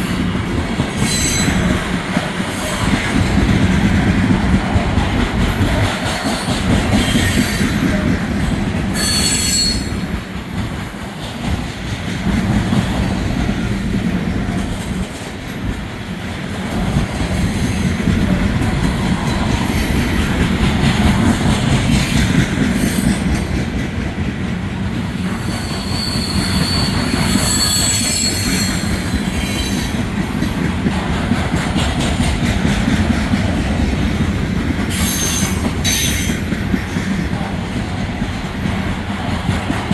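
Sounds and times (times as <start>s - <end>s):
train wheels rumbling on rails: 0.0s - 39.9s
high-pitched wheel squeals: 9.0s - 10.0s, 25.4s - 28.8s.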